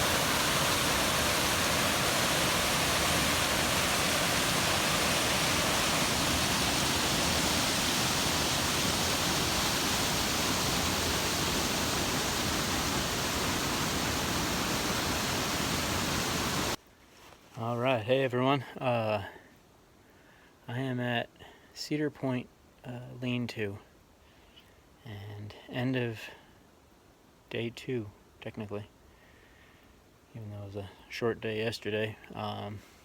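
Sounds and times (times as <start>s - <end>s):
water rushing: 0.0s - 16.8s.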